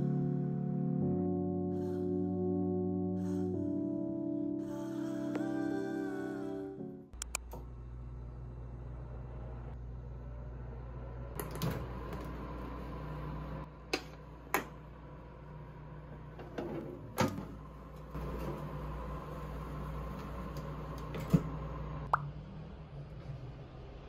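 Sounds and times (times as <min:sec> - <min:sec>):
steady low room hum: 0:07.2 - 0:22.2.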